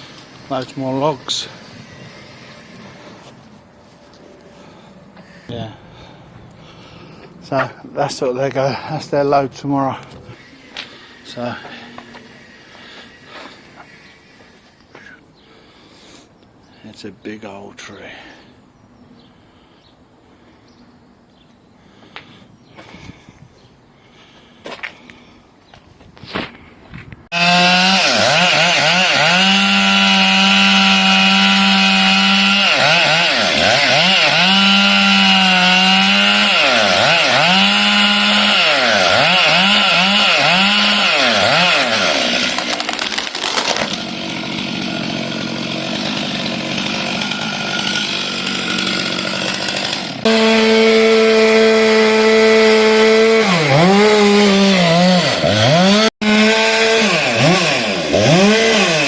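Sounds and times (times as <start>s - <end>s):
chainsaw cutting wood: 0.0s - 3.4s, 10.1s - 15.1s, 27.3s - 59.0s.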